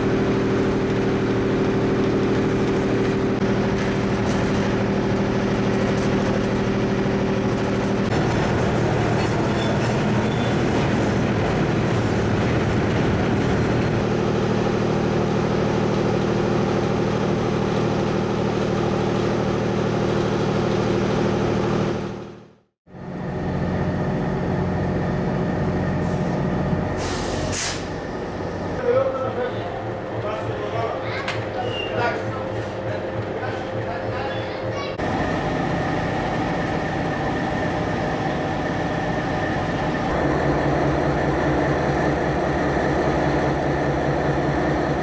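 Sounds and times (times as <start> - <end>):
freight cars rattling on rails: 0.0 - 22.2, 24.2 - 45.0
diesel engine droning: 0.0 - 45.0
burst of hiss: 27.0 - 27.9.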